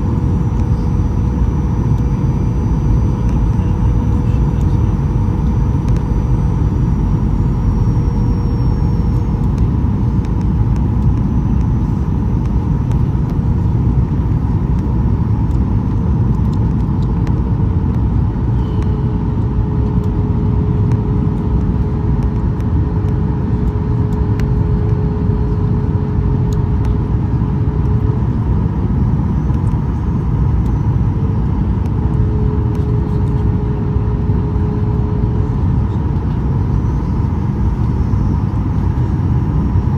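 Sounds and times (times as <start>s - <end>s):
airplane cabin roar: 0.0s - 39.9s
faint steady hums: 0.0s - 39.9s.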